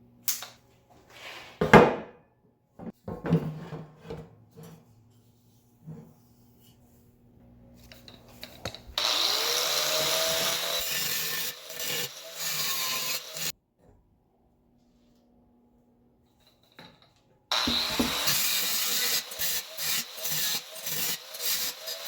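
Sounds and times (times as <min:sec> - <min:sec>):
handheld power tool motor: 0:09.0 - 0:13.5, 0:17.5 - 0:22.0.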